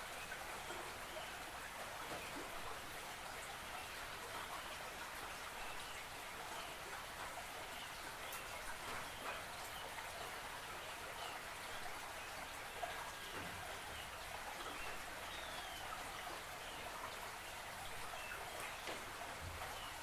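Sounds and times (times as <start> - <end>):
dense pattering water: 0.0 - 20.0.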